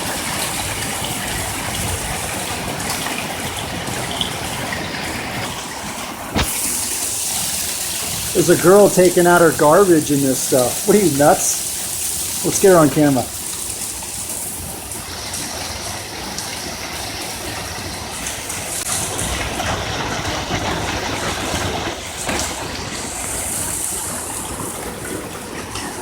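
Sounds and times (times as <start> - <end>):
hailstones pelting the ground: 0.0 - 16.6, 17.5 - 26.0.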